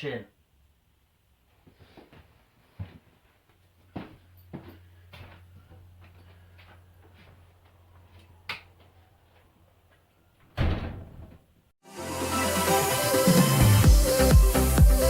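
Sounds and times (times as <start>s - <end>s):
loud thump: 10.6s - 11.4s.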